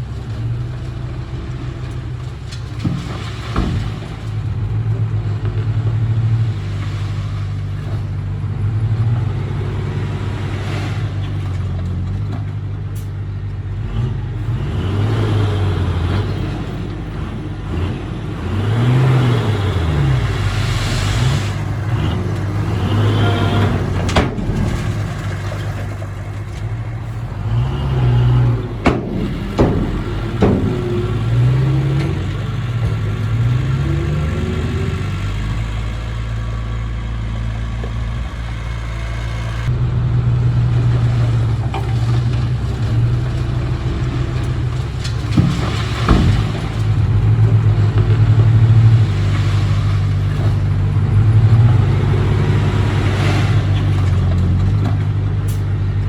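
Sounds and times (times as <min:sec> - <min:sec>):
bulldozer diesel engine: 0:00.0 - 0:56.0
sharp metallic knocks: 0:28.8 - 0:33.7.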